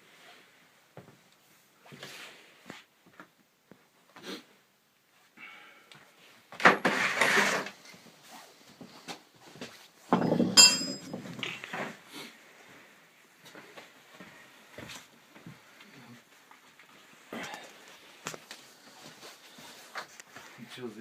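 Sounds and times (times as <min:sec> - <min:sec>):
metal objects clattering: 0:10.1 - 0:11.6
ringing metallic clink: 0:10.2 - 0:11.2.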